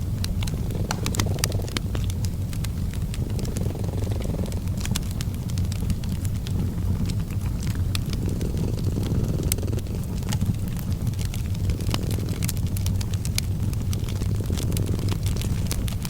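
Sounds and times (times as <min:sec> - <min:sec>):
cat purring: 0:00.0 - 0:16.0
fireplace crackling: 0:00.0 - 0:16.0.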